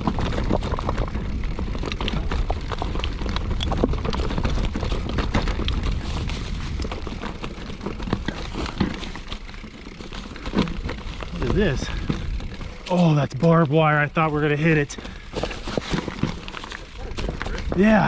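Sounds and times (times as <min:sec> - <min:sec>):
wind buffeting microphone: 0:00.0 - 0:09.1, 0:10.7 - 0:12.9, 0:14.2 - 0:18.0
bike rattling over rocks: 0:00.0 - 0:18.0.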